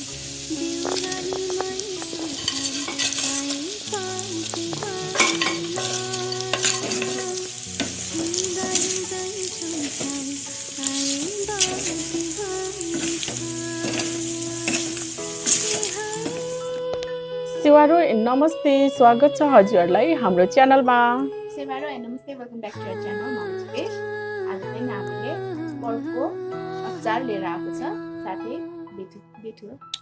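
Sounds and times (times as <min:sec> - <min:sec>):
food sizzling in a pan: 0:00.0 - 0:21.8.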